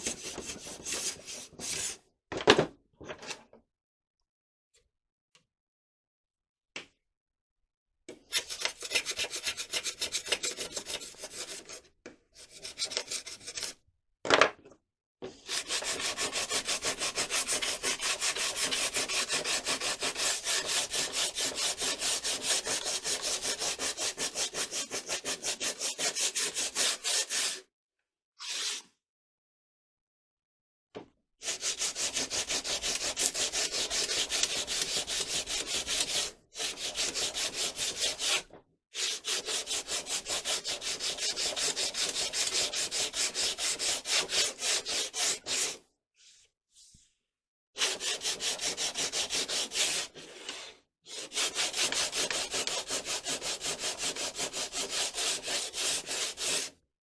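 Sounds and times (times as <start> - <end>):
sandpaper rasping: 8.3 - 11.8, 15.5 - 27.6, 31.4 - 38.4, 39.0 - 45.8, 47.8 - 56.8.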